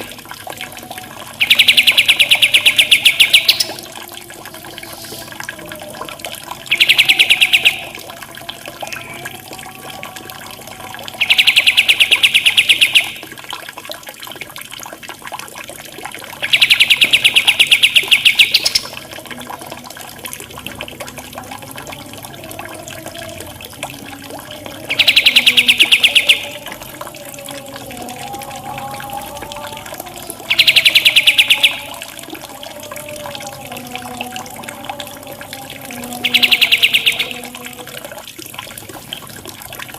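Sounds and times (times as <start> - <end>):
soft wavering bird calls: 0.0 - 13.3, 16.3 - 19.9, 21.8 - 38.3
water trickling: 0.0 - 39.9.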